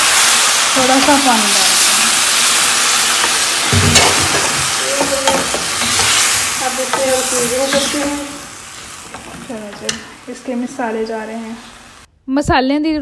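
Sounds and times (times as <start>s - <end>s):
vegetables sizzling in a pot: 0.0s - 12.1s
wooden spoon knocking and scraping pot: 2.4s - 10.4s.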